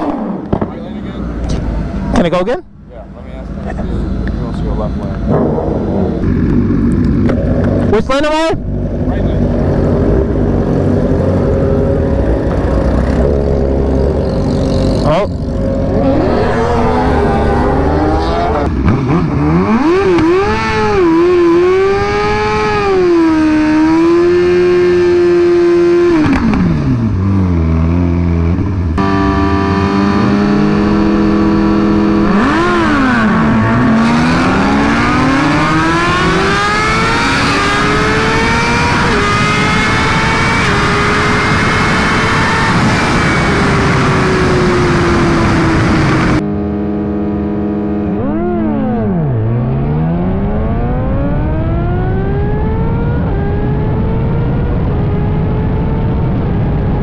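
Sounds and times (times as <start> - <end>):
motorcycle engine revving: 3.4 - 56.1.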